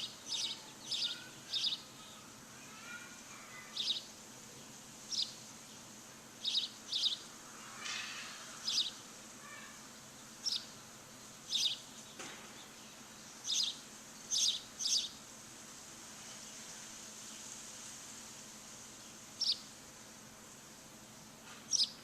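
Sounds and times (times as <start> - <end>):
bird chirping: 0.0 - 7.3, 8.0 - 10.8, 11.4 - 15.2, 19.0 - 19.7, 21.7 - 22.0
steady background hiss: 0.0 - 22.0.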